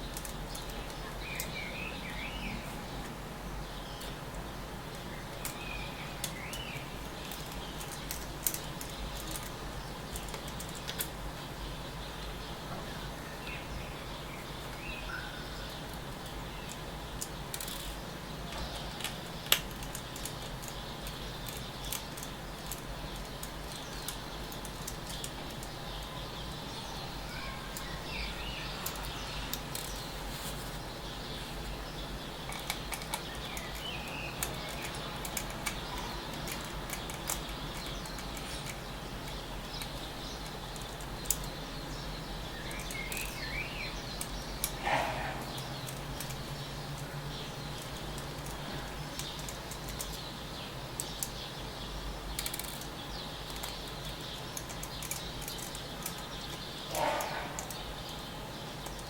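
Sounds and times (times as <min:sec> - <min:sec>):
steady background noise: 0:00.0 - 0:59.0
bird chirps: 0:11.6 - 0:16.9, 0:20.7 - 0:59.0.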